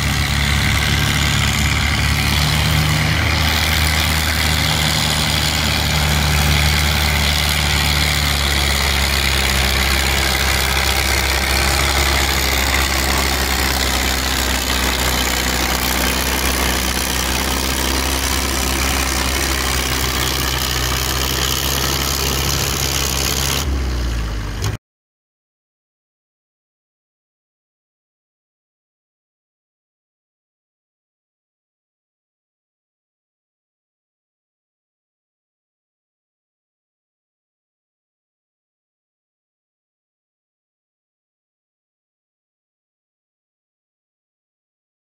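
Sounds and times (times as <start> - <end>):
tractor engine idling: 0.0 - 24.8.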